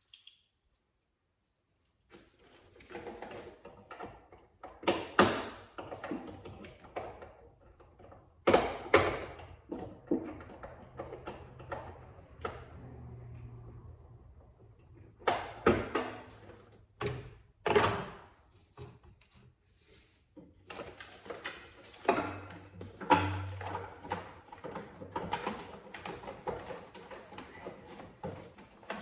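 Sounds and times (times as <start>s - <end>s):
hand tools knocking and rattling: 2.8s - 12.4s, 20.6s - 29.0s
clattering and scraping: 14.7s - 29.0s.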